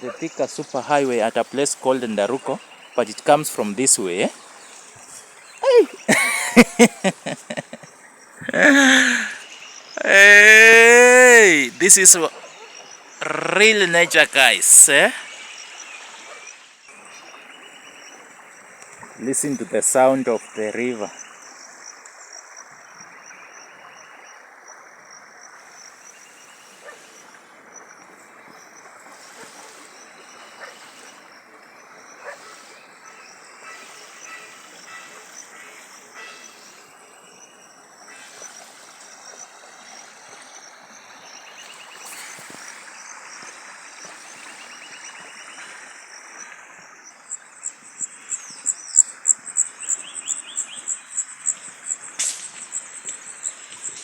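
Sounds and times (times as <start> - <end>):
high insect drone: 0.2 - 54.0
river rushing: 8.4 - 9.4, 10.0 - 12.3, 13.2 - 15.4.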